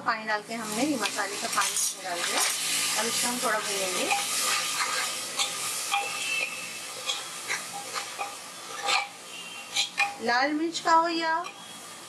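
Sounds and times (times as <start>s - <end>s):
masala sizzling in hot oil: 0.0s - 12.0s
metal spoon scraping a pot: 3.8s - 10.2s.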